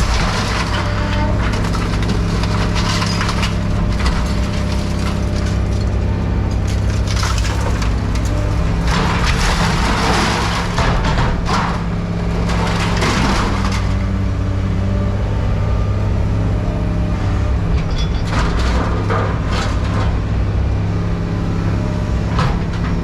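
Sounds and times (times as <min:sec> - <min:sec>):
heavy machine engine running: 0:00.0 - 0:17.7
scrap metal crunching: 0:00.1 - 0:13.8.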